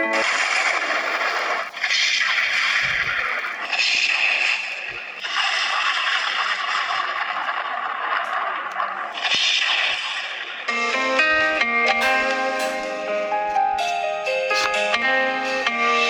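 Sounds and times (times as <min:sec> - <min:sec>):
blade being sharpened: 0:12.0 - 0:16.0.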